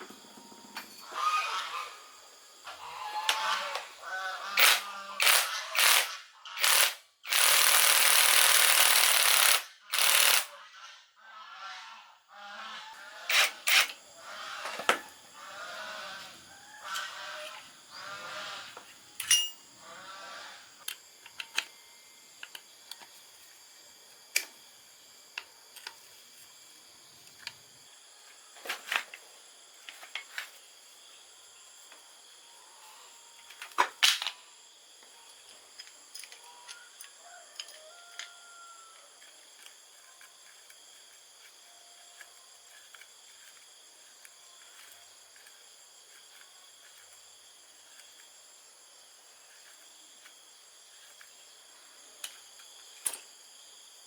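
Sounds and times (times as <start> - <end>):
insects chorus: 0.0 - 54.0
metal tools knocking and clicking: 19.2 - 19.6.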